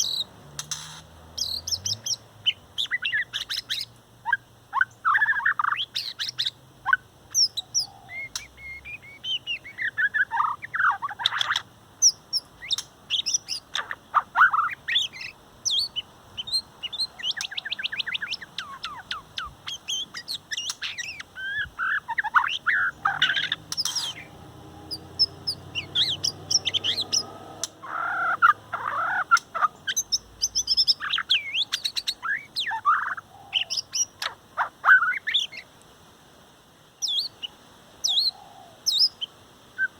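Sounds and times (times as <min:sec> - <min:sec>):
bird singing whistled phrases: 0:07.4 - 0:11.4, 0:14.4 - 0:27.4.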